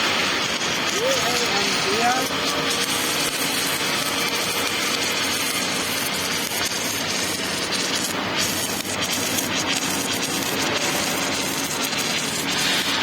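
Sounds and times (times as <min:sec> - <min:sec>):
welding machine running: 0:00.0 - 0:13.0.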